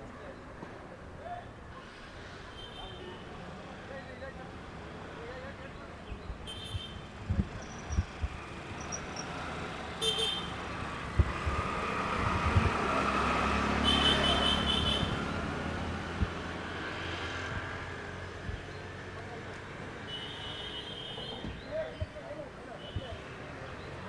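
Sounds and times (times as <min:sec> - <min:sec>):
car horns tooting: 0:10.0 - 0:10.5, 0:13.8 - 0:15.2, 0:20.0 - 0:21.6
vehicle passing close by: 0:10.5 - 0:18.4.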